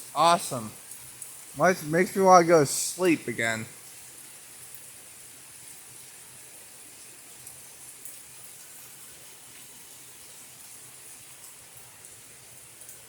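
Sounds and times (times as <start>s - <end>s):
heavy rain hissing: 0.0s - 3.8s.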